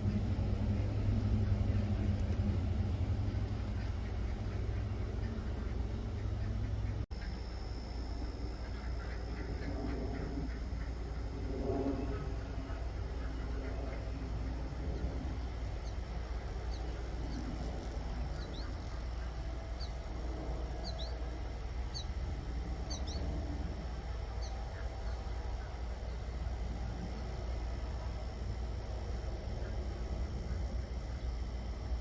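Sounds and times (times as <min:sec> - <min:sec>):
waterfowl calling faintly: 0:00.0 - 0:22.1
low rumble: 0:00.0 - 0:24.0
small bird chirping: 0:15.2 - 0:22.2, 0:22.8 - 0:23.4.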